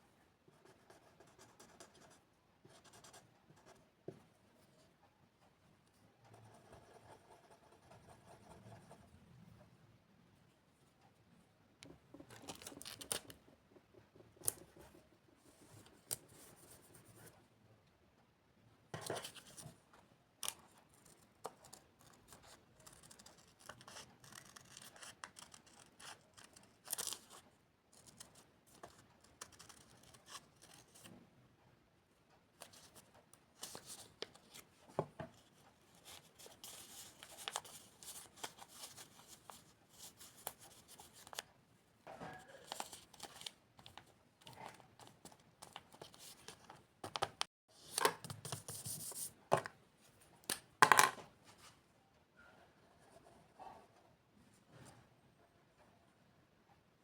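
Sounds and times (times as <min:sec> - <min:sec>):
scratching on paper: 0:06.3 - 0:09.0, 0:21.0 - 0:27.4, 0:28.0 - 0:31.1, 0:48.4 - 0:49.4
paper rustling: 0:42.5 - 0:47.4.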